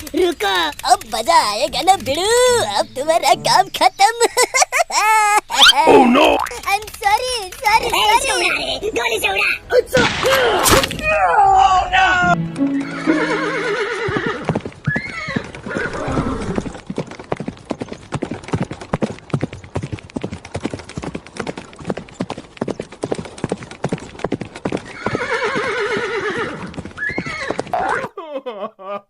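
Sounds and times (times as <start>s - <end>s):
horse hoofbeats galloping: 12.5s - 27.7s
horse whinnying: 13.2s - 16.7s, 24.9s - 28.0s.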